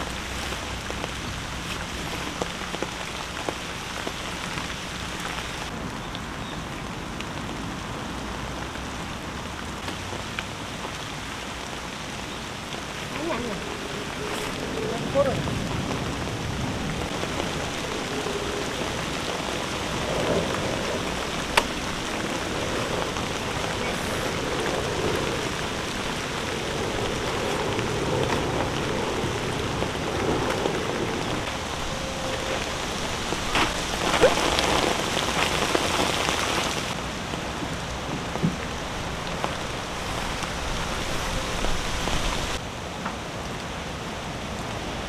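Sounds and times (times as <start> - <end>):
nylon tent rustling: 0.0 - 5.7, 13.0 - 16.0, 16.7 - 37.0, 38.8 - 42.6
steady rain falling: 0.0 - 45.0.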